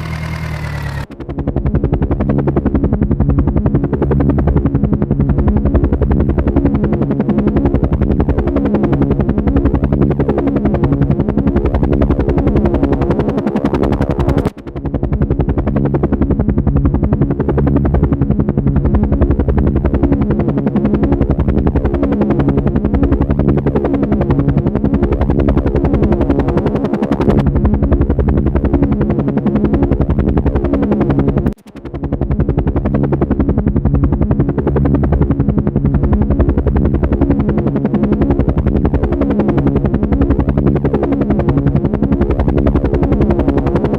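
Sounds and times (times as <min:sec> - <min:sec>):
low two-note hum: 0:00.0 - 0:02.6
helicopter rotor chopping: 0:00.0 - 0:43.9.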